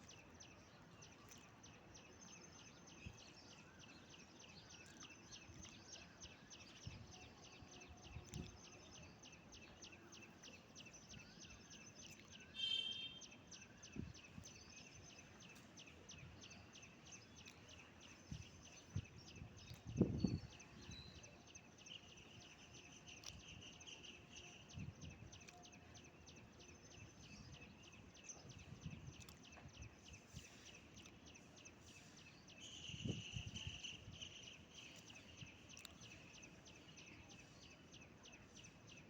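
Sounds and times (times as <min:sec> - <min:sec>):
bird call: 0:12.6 - 0:13.2.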